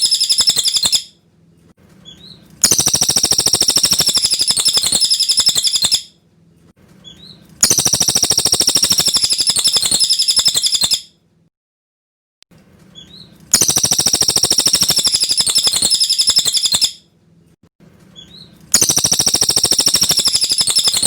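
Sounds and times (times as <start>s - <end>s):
bird chattering calls: 0.0s - 1.0s, 2.6s - 6.0s, 7.6s - 11.0s, 13.5s - 17.0s, 18.8s - 21.0s.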